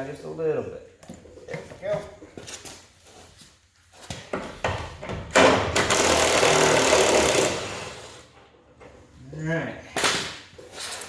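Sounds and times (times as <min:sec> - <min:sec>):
impact wrench rattling: 0:05.4 - 0:08.2.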